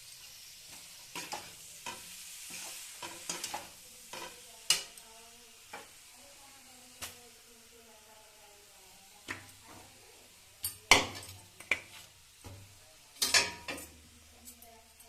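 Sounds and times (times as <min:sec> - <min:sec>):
pots and utensils clattering: 0:00.8 - 0:04.9, 0:10.6 - 0:14.7.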